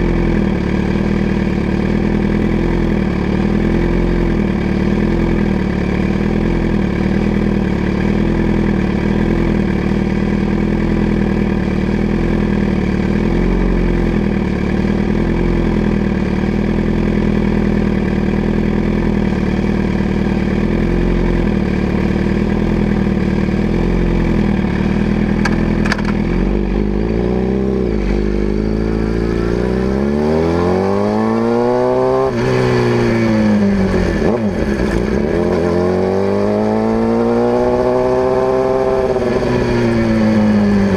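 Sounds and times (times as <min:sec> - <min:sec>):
motorcycle engine idling: 0:00.0 - 0:30.4
motorcycle revving and riding off: 0:00.0 - 0:40.9.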